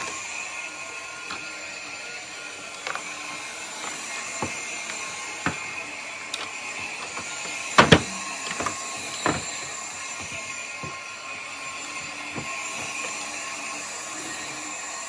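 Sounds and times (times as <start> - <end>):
plastic parts clicking and knocking: 6.3 - 9.6.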